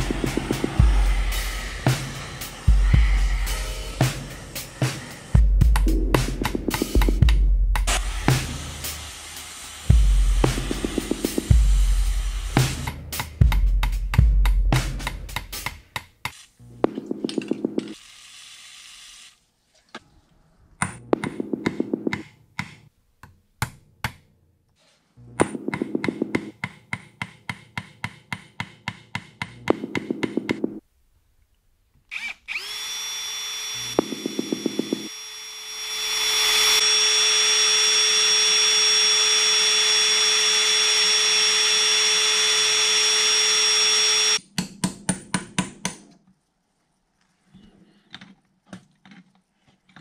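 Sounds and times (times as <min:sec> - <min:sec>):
electric drill whining: 0:00.0 - 0:05.5, 0:17.3 - 0:19.4, 0:32.1 - 0:44.4.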